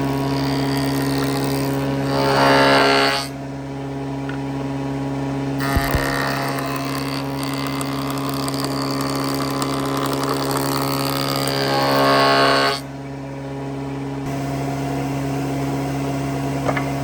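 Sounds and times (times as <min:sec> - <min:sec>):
workshop machine humming: 0:00.0 - 0:17.0
short knocks: 0:05.6 - 0:06.5.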